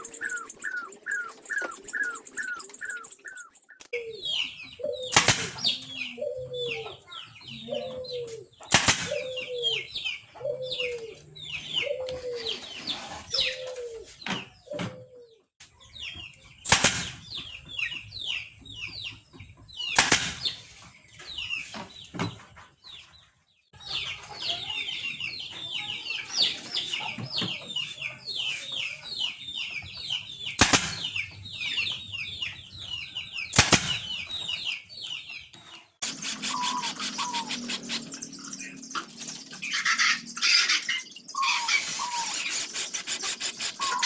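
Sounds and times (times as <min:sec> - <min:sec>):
birds chirping: 0:00.0 - 0:44.0
low clucking calls: 0:36.0 - 0:38.2, 0:39.8 - 0:44.0.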